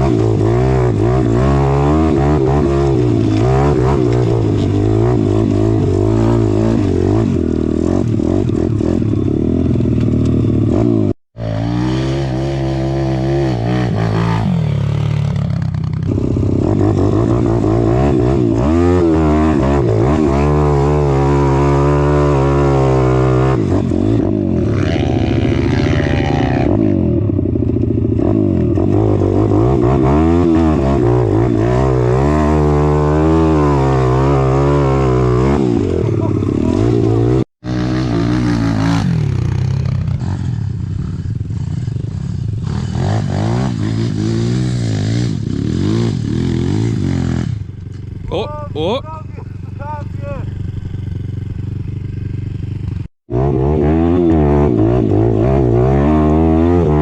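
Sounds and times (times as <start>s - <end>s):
pit bike engine revving: 0.0s - 57.0s.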